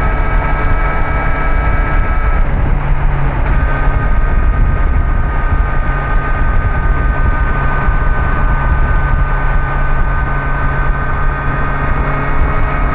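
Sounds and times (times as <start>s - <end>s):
motorcycle engine cruising: 0.0s - 12.9s
road noise: 0.0s - 12.9s
rushing wind: 0.0s - 12.9s
steady whine: 0.0s - 12.9s.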